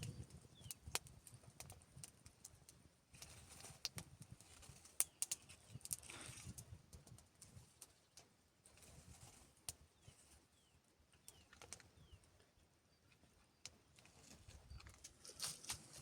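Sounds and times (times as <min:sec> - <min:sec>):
small bird chirping: 0:00.0 - 0:01.0, 0:10.0 - 0:14.0.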